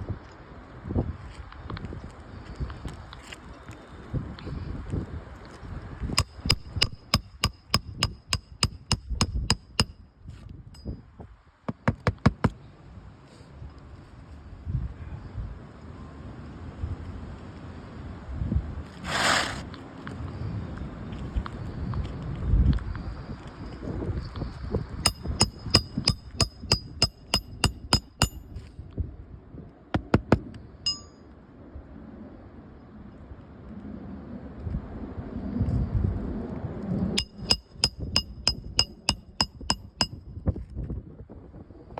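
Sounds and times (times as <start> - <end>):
hammer striking roofing nails: 6.2 - 10.0, 11.7 - 12.5, 25.1 - 28.5, 30.0 - 30.4, 37.2 - 40.2.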